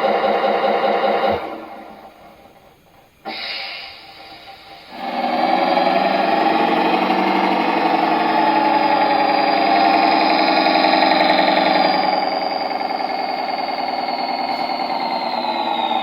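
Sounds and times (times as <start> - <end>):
simulated diesel engine from speaker: 3.3 - 16.0.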